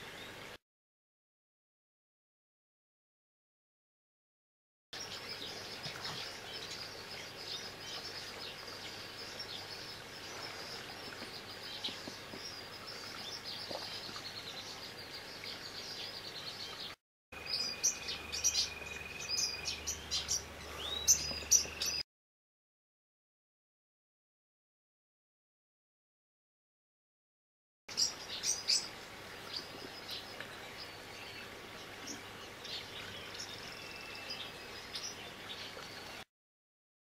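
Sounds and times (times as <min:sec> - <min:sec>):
small birds chirping: 0:05.0 - 0:22.0, 0:27.9 - 0:36.3.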